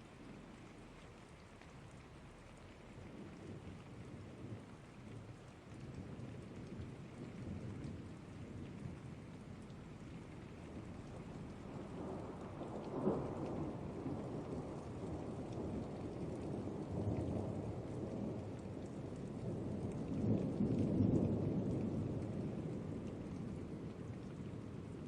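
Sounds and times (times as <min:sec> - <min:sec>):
steady rain: 0:00.0 - 0:25.0
thunder crack and rumbles: 0:10.4 - 0:25.0.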